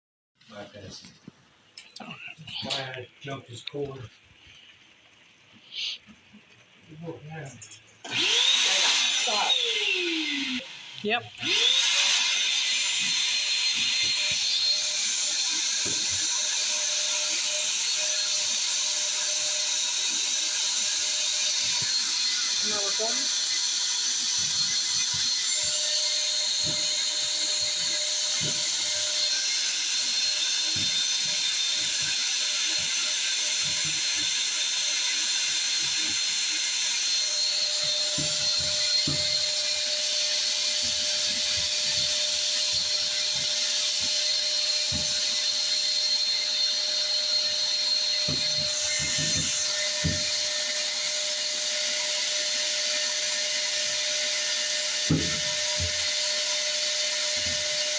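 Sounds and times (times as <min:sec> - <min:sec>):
shop vac whining: 0:07.0 - 0:57.9
hose knocking in vent: 0:21.6 - 0:45.6, 0:47.5 - 0:50.8.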